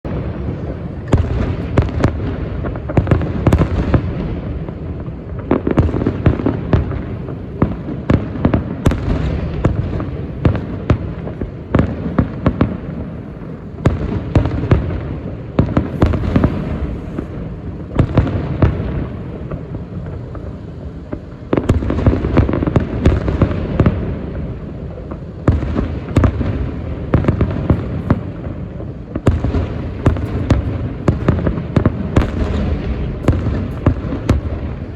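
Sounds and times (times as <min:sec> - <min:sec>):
rolling booms: 0:00.1 - 0:34.9
fireworks shells bursting: 0:14.4 - 0:19.2, 0:29.2 - 0:34.9.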